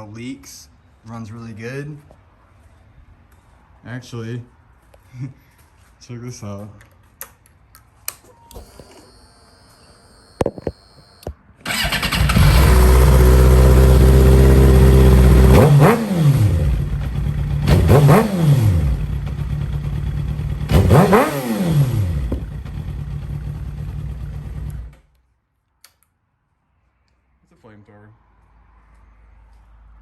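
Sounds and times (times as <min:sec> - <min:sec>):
motorcycle engine starting and revving: 0:10.8 - 0:25.1.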